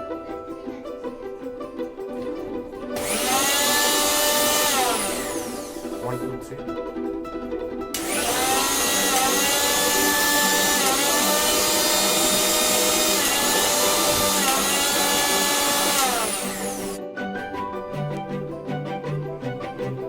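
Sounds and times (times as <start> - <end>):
mixer grinder motor whining: 3.0 - 6.0, 8.0 - 17.0.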